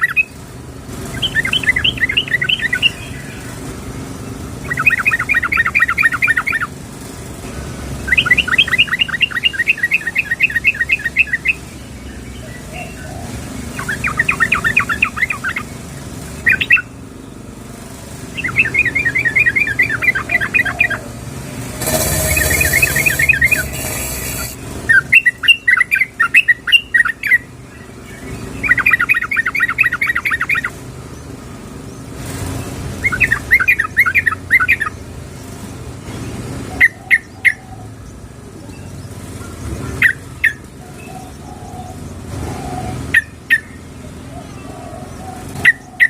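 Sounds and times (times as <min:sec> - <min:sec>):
bulbul chattering: 0:18.2 - 0:27.4.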